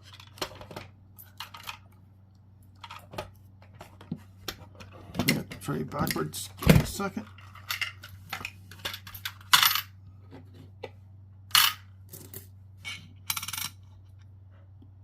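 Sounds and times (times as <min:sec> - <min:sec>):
coin rattle: 0:13.2 - 0:13.9
coins clinking: 0:13.3 - 0:13.8.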